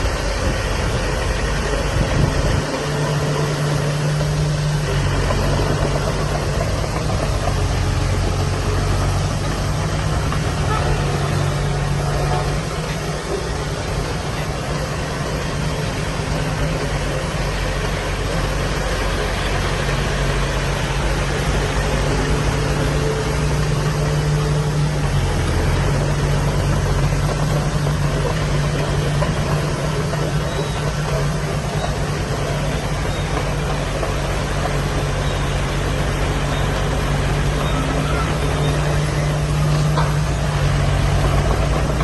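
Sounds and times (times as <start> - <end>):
heavy diesel machinery running: 0.0 - 42.0.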